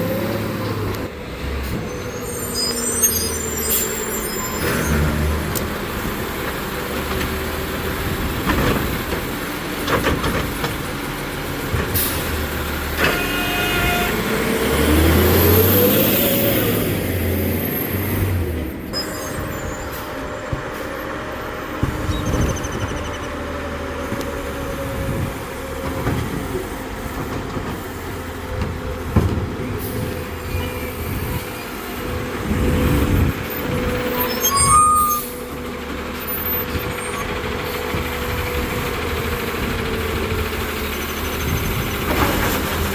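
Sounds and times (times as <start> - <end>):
garbage truck engine running: 18.2 - 42.9.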